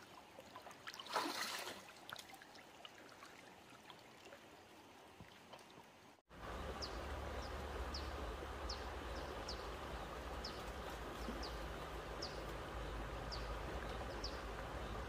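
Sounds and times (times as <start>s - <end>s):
outdoor rumble and hiss: 6.3s - 15.0s.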